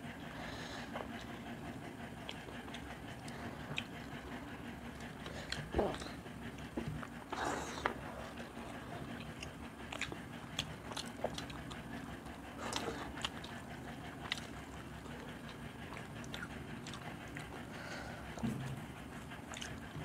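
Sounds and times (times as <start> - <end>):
chewing and lip smacks: 0.9 - 20.0.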